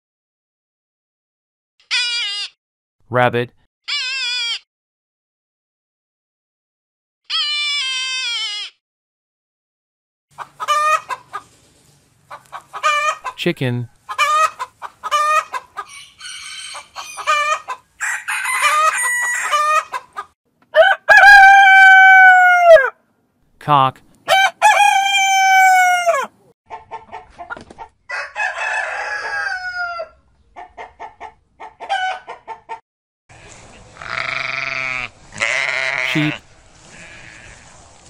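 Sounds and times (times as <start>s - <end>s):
chicken squawks: 1.8s - 2.6s, 3.9s - 4.6s, 7.3s - 8.8s, 10.3s - 11.6s, 12.3s - 13.4s, 14.0s - 23.0s, 24.3s - 32.8s, 33.4s - 37.7s
hen clucking: 10.3s - 20.9s, 24.3s - 28.2s, 29.3s - 37.7s
rooster crowing: 15.1s - 20.0s, 20.7s - 23.0s, 24.3s - 26.4s, 28.1s - 30.2s, 31.8s - 32.3s.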